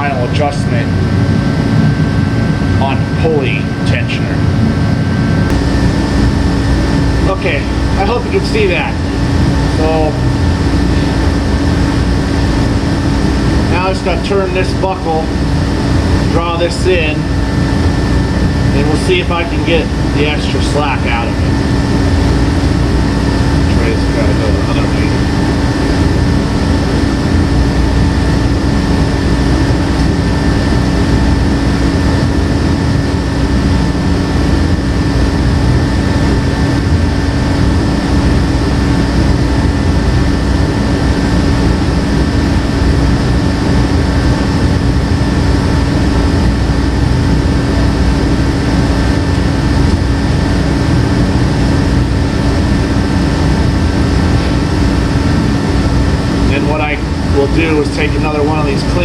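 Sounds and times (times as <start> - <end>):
machine droning hum: 0.0 - 59.0.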